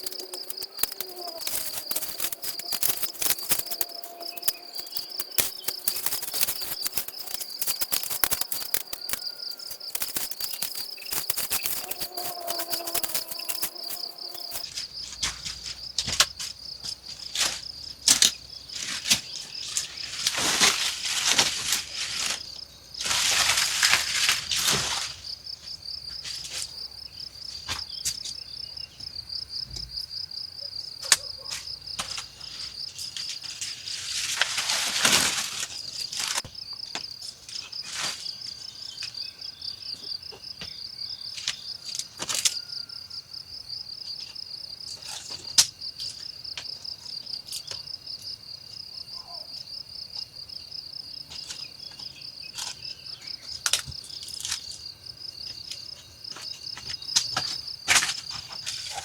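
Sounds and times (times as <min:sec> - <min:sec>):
sharp clicks: 0:00.0 - 0:14.7
insects chirring: 0:00.0 - 0:59.0.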